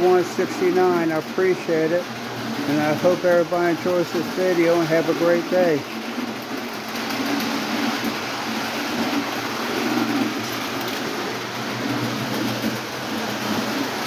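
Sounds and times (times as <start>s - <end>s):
model trains whirring and rattling: 0.0s - 14.0s.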